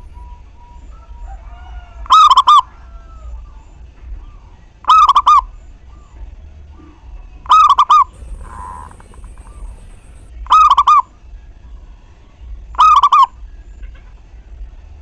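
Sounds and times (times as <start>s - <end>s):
dove cooing: 8.1s - 10.3s.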